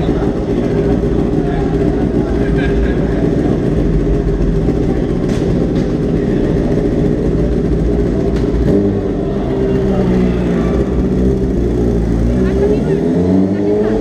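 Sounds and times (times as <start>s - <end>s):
vehicle engine running loudly: 0.0s - 14.0s.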